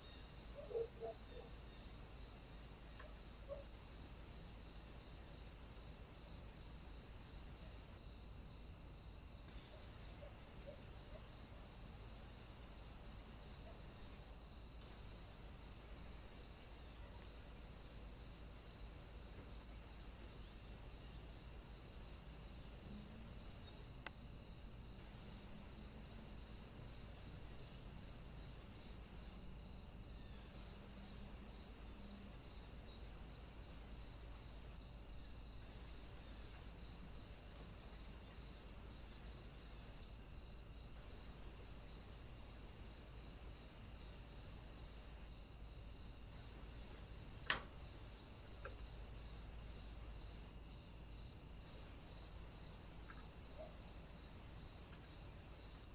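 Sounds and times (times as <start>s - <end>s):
faint high-pitched hiss: 0.0s - 55.9s
sharp click: 47.4s - 47.8s.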